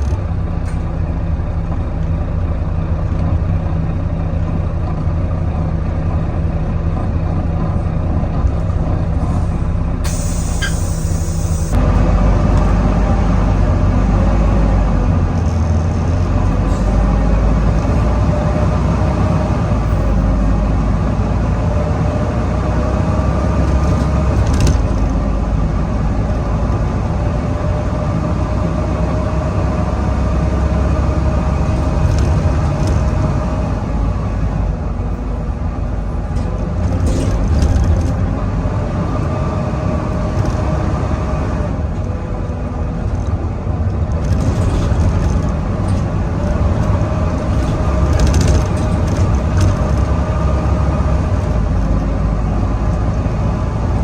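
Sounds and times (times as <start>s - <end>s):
bus engine rumbling and whining: 0.0s - 54.0s.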